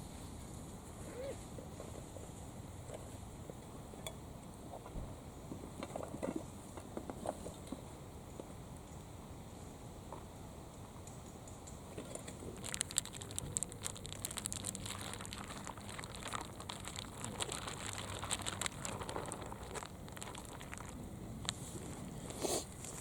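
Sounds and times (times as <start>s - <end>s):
crinkling and rustling: 11.9s - 23.0s.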